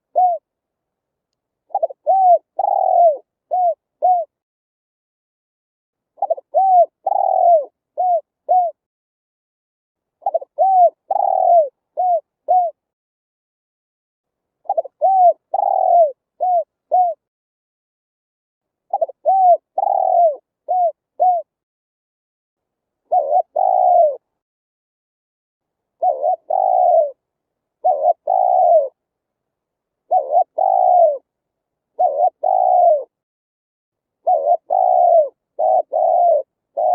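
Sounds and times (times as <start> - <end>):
dove cooing: 0.0 - 0.5, 1.7 - 4.4, 6.2 - 8.8, 10.2 - 12.8, 14.6 - 17.2, 18.9 - 21.5, 23.1 - 24.2, 26.0 - 27.2, 27.8 - 29.0, 30.0 - 31.3, 32.0 - 33.2, 34.2 - 36.9.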